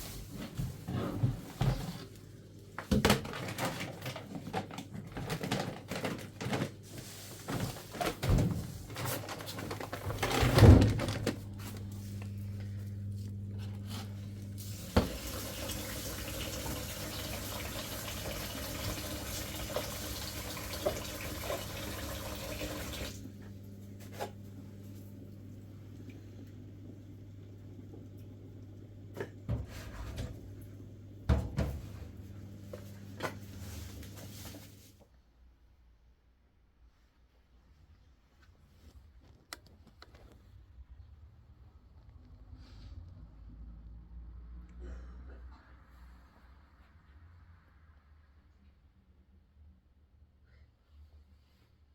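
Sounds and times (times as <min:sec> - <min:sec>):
water pouring: 0:14.6 - 0:23.2.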